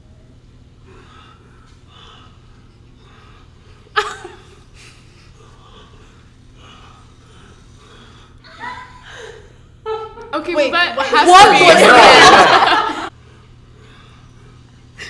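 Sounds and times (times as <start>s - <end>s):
heavy rhythmic breathing: 0.7s - 9.8s, 11.0s - 15.0s
man and woman talking: 10.6s - 12.5s.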